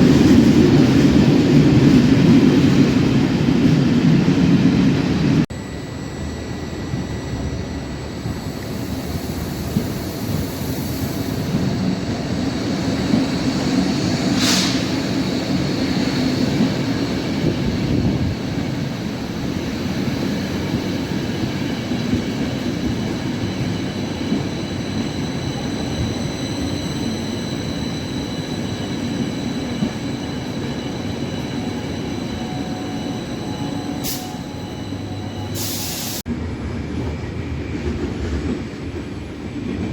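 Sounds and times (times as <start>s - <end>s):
train rumble: 6.5s - 39.9s
hiss burst: 14.3s - 15.0s, 35.6s - 36.2s
high wheel squeal: 21.3s - 36.2s.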